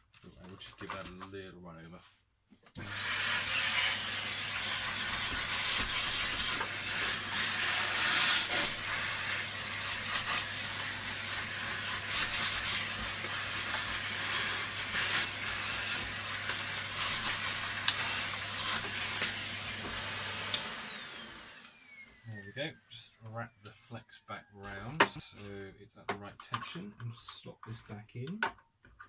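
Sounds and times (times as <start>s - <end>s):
vacuum cleaner running: 2.8s - 22.9s.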